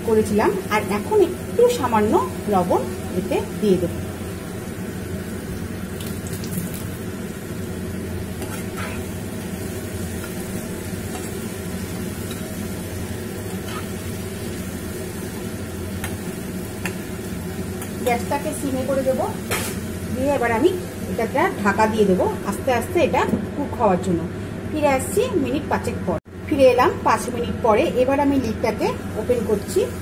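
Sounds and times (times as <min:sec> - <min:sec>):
food sizzling in oil: 0:00.0 - 0:22.9
metal spatula scraping pan: 0:08.4 - 0:09.2, 0:13.6 - 0:14.0.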